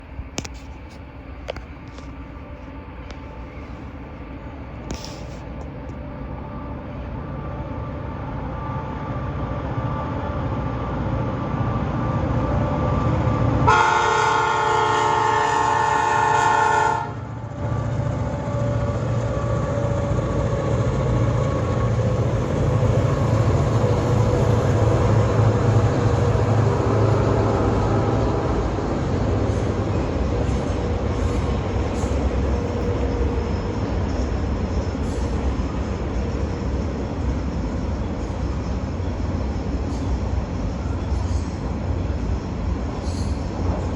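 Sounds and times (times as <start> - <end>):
locomotive engines running: 0.0 - 43.9
locomotive horn chord: 6.2 - 17.4, 26.7 - 29.2.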